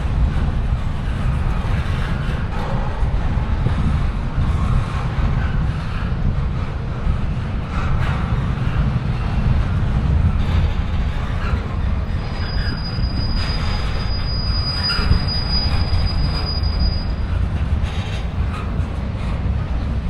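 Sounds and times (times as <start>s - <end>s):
train rumbling past: 0.0s - 20.0s
high wheel squeal: 10.2s - 18.9s.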